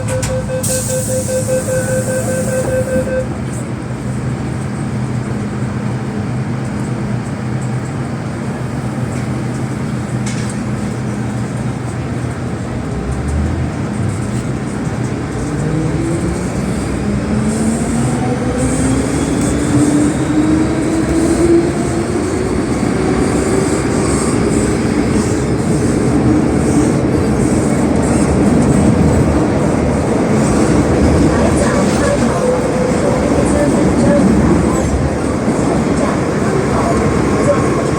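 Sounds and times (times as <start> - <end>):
traction motors whining: 0.0 - 3.6.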